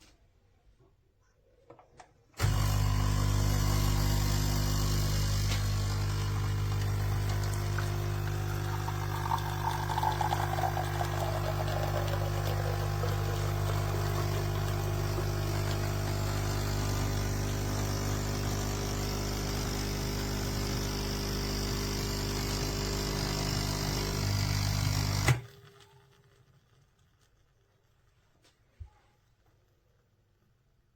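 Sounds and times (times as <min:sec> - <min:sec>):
coffee machine pump buzzing: 0:02.4 - 0:26.3.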